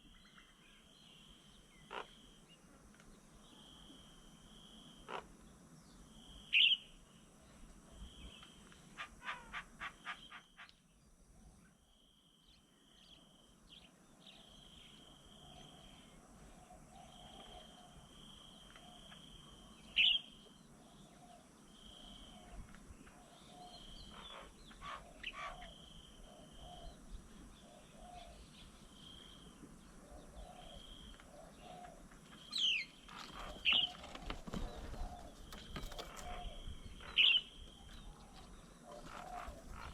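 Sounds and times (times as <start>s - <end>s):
sharp falling bird calls: 30.7s - 39.9s
high bird trill: 32.5s - 38.4s.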